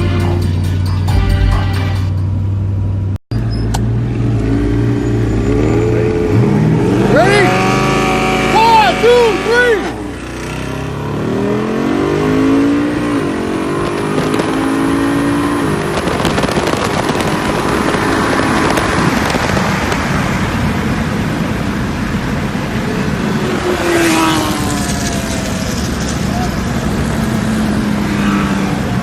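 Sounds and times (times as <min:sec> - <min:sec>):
race engines at full throttle: 0:00.0 - 0:29.0
loud steady rushing noise: 0:06.5 - 0:29.0.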